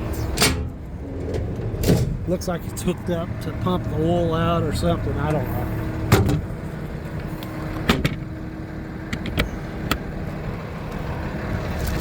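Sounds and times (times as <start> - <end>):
diesel truck engine idling: 0.0 - 12.0
sharp clicks and knocks: 9.1 - 10.1.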